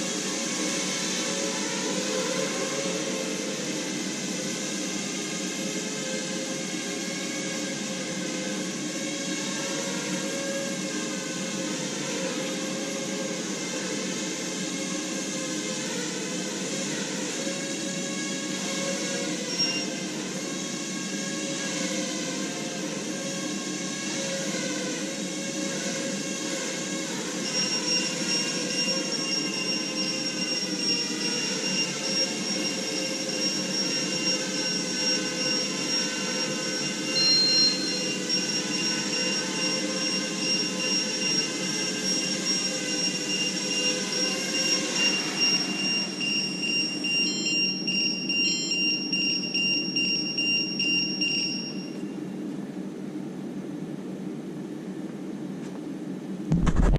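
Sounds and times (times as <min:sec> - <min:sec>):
drone motors and propellers: 0:00.0 - 0:52.2, 0:56.5 - 0:56.9
high-pitched alarm buzzer: 0:17.3 - 0:23.4, 0:26.8 - 0:52.2.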